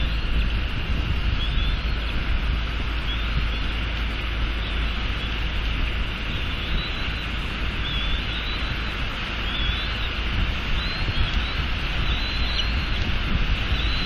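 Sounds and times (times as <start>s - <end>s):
rain and wind hiss: 0.0s - 14.0s
faint high chirps: 6.3s - 14.0s.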